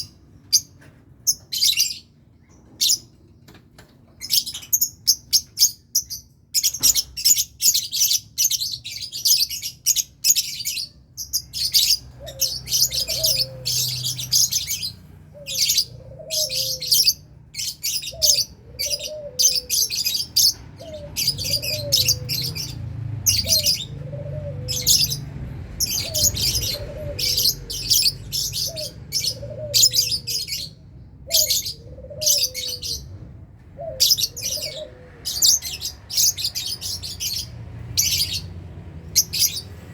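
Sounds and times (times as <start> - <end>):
lovebirds chattering: 4.2 - 33.2, 33.8 - 39.9
low curved bird call: 11.6 - 33.1, 33.8 - 38.5.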